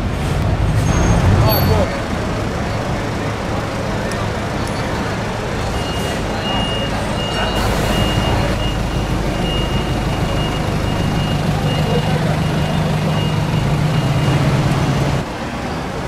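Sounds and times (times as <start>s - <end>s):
vehicle engines idling: 0.0s - 16.0s
high-pitched electronic beep: 5.8s - 14.7s.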